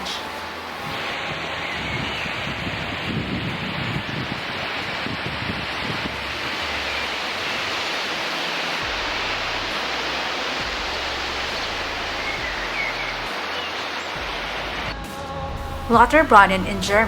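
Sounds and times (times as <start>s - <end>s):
falling water rushing: 0.0s - 17.0s.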